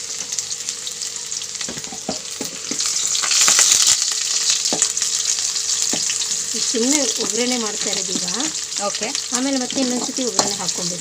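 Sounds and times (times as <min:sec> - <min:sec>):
onions sizzling in oil: 0:00.0 - 0:11.0
spoon scraping and knocking pan: 0:09.6 - 0:10.9.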